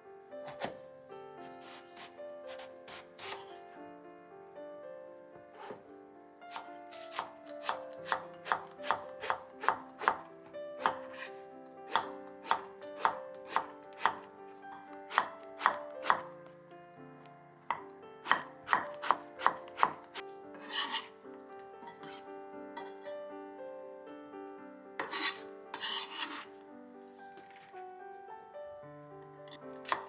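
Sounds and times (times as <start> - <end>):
knife chopping on cutting board: 0.4 - 0.8, 1.4 - 3.6, 5.6 - 5.8, 6.5 - 11.3, 11.9 - 16.4, 17.7 - 21.2, 21.9 - 22.2, 25.0 - 26.5, 29.5 - 30.0
knife scraping board: 0.4 - 0.8, 1.4 - 3.6, 5.6 - 5.8, 6.5 - 11.3, 11.9 - 14.3, 15.1 - 16.3, 18.3 - 21.2, 21.8 - 23.1, 25.0 - 26.6, 29.5 - 30.0.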